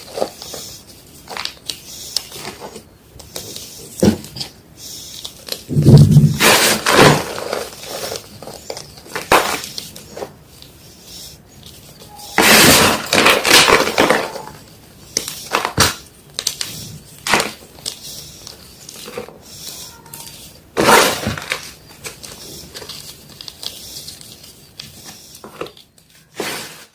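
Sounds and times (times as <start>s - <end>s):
chalk crunching: 13.7s - 26.9s.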